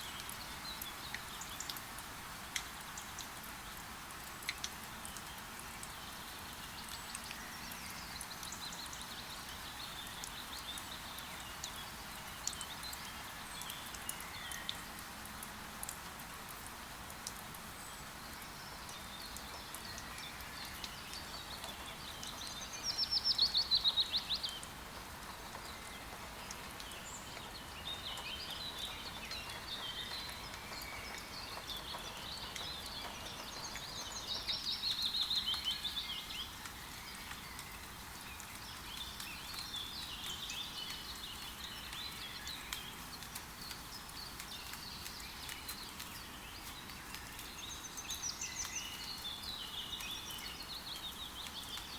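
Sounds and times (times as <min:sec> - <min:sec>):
steady rain: 0:00.0 - 0:51.9
birds twittering and chirping: 0:17.3 - 0:51.9.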